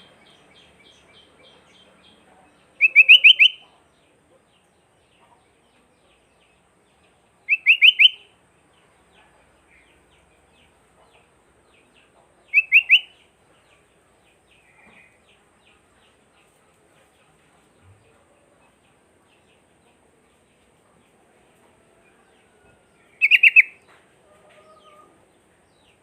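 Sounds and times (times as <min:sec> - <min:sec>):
faint bird chirping: 0:00.0 - 0:26.0
bulbul calling rising notes: 0:23.2 - 0:23.8.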